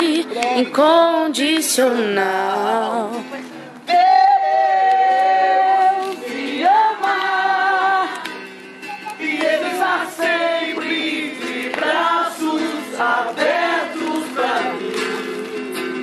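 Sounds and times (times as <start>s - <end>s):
group of voices singing: 3.9s - 16.0s.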